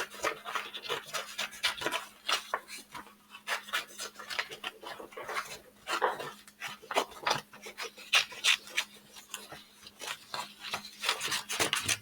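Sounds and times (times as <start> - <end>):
paper rustle: 0.0 - 12.0
scissors snipping paper: 3.4 - 12.0.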